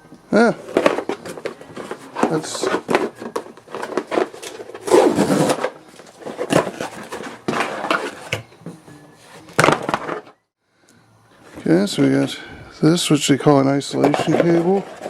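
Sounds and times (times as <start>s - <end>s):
hands rustling packaging: 0.4s - 8.6s, 13.4s - 15.0s
cables and accessories clattering: 0.4s - 8.8s, 13.4s - 15.0s.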